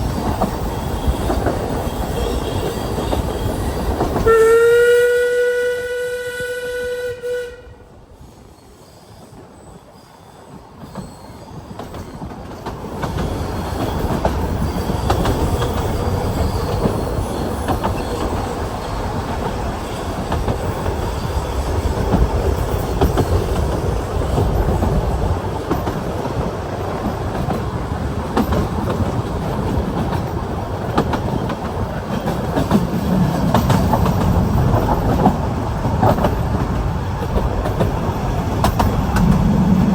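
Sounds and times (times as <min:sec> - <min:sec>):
rail joint clicks: 0:00.0 - 0:07.2, 0:08.3 - 0:39.9
train wheels on rail: 0:00.0 - 0:39.9
train warning horn: 0:00.9 - 0:08.1.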